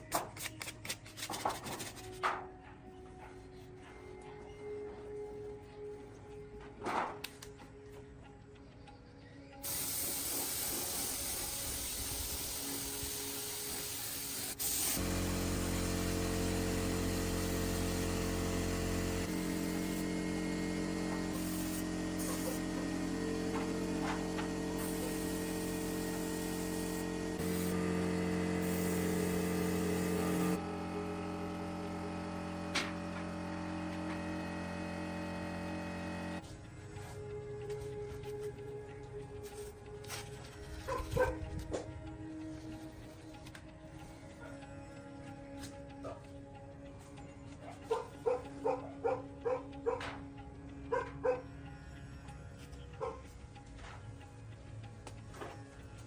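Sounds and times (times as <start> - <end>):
spraying hiss of air: 9.6 - 20.0, 21.3 - 22.7, 24.8 - 30.6
motor humming: 12.6 - 56.0.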